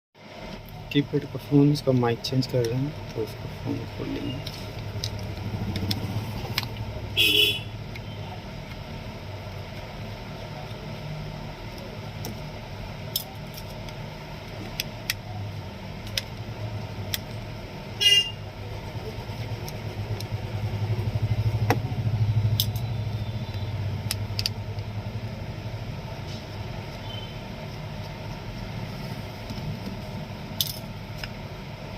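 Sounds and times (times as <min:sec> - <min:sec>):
road traffic rumble: 0:00.5 - 0:31.9
vehicle horn toots: 0:07.2 - 0:08.2, 0:18.0 - 0:18.4.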